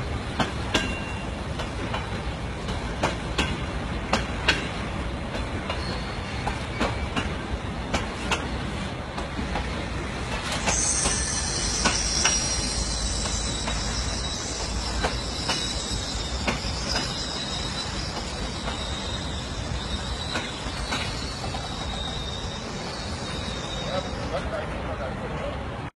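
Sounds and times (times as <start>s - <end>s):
train rumbling on rails: 0.0s - 25.9s
high-pitched wheel squeal: 10.6s - 24.6s.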